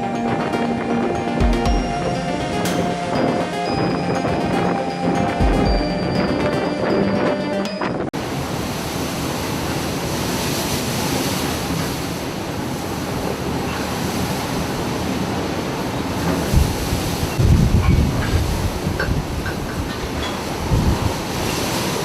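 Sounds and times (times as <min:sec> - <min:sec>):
background music: 0:00.0 - 0:08.1
breaking sea waves: 0:00.0 - 0:22.0
rush of wind: 0:00.0 - 0:22.0
wind blowing on microphone: 0:16.2 - 0:22.0.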